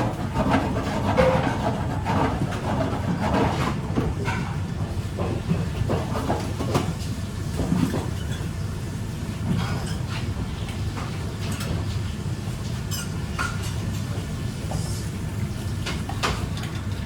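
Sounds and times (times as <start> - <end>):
dishes and utensils clattering: 0.4 - 4.6, 9.5 - 10.3, 12.9 - 13.8, 15.8 - 17.0.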